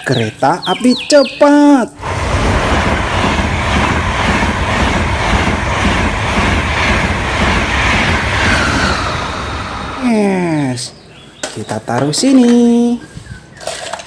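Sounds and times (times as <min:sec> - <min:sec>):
train rumbling on rails: 0:02.0 - 0:11.2.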